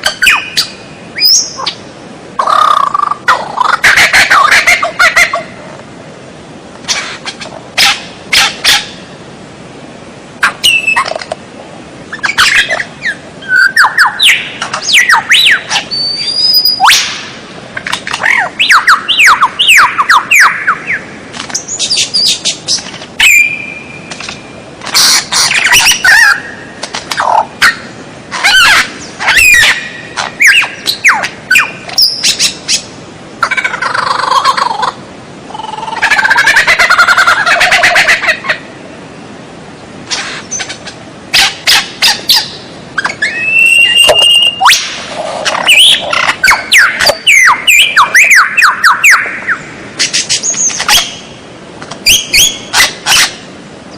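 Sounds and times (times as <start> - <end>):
bird singing whistled phrases: 10.6 - 11.1, 12.2 - 17.2, 23.2 - 24.1, 42.3 - 44.9, 45.7 - 49.6.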